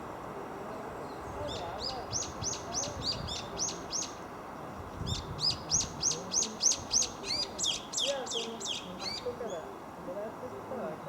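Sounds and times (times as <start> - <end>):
small bird chirping: 5.1 - 9.6.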